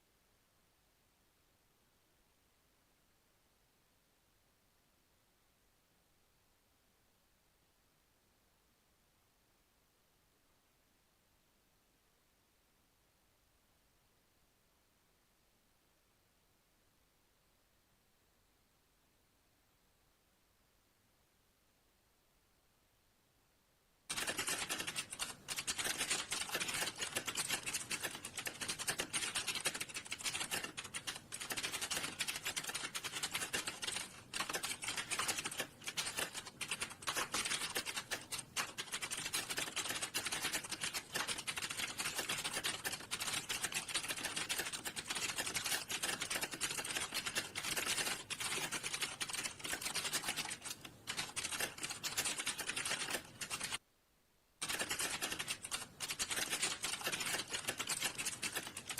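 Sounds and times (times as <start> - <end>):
fast keyboard typing: 24.1 - 53.8, 54.6 - 58.9.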